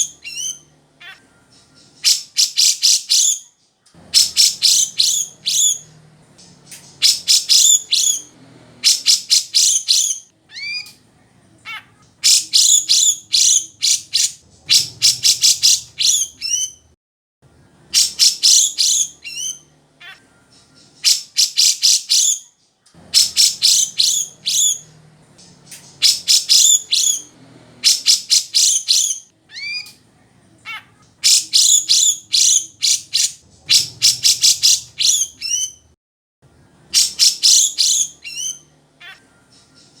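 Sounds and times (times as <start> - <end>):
bird singing sharp chattering notes: 4.1 - 10.9, 12.2 - 16.8, 17.9 - 19.7, 23.1 - 29.9, 31.2 - 35.8, 37.0 - 40.0.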